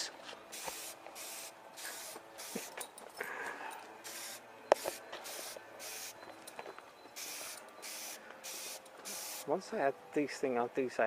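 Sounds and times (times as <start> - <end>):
spray paint can hissing: 0.5 - 2.8, 4.0 - 6.2, 7.2 - 9.5.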